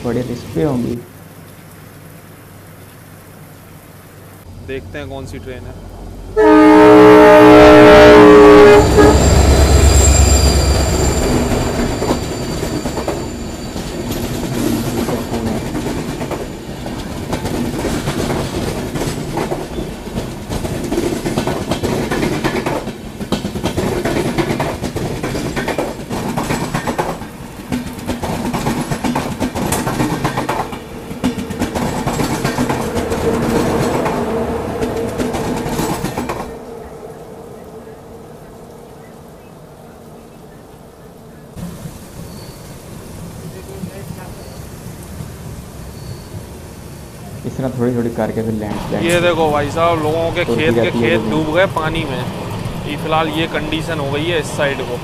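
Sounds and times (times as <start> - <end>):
train passing rumble: 3.4 - 55.0
train horn: 6.4 - 13.4
train wheels clacking: 8.8 - 36.6.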